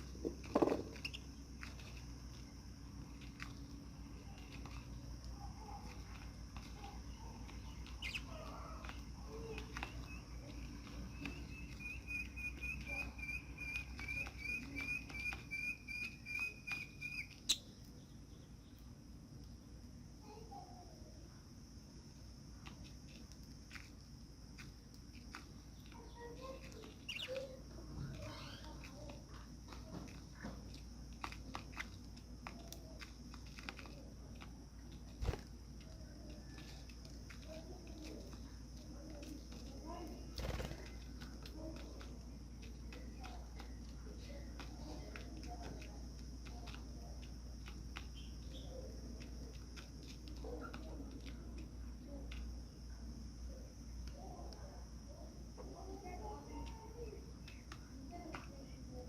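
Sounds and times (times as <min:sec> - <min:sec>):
budgerigars pecking at food: 0:00.0 - 0:20.2, 0:21.1 - 0:59.0
budgerigar chirping: 0:07.9 - 0:08.3, 0:11.5 - 0:17.7, 0:27.1 - 0:27.4.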